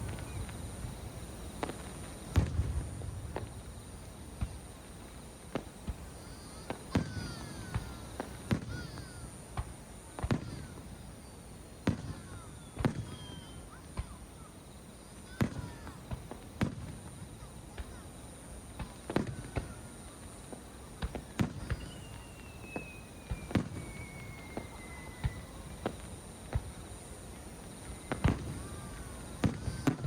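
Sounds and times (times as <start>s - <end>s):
fireworks bangs: 0.0s - 30.0s
falling whistle: 12.3s - 13.8s, 21.4s - 26.0s, 27.8s - 30.0s.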